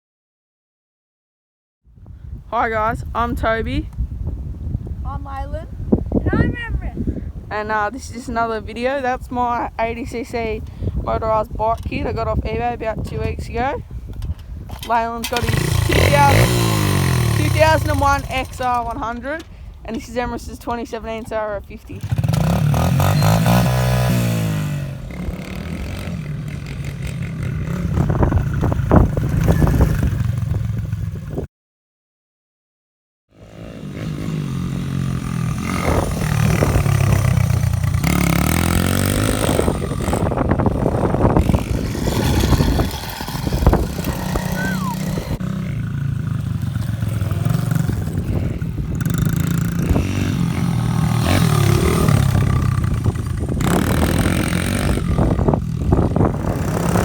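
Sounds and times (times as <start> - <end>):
small motorbike engines revving: 14.7 - 19.5, 22.0 - 31.2, 33.3 - 57.0.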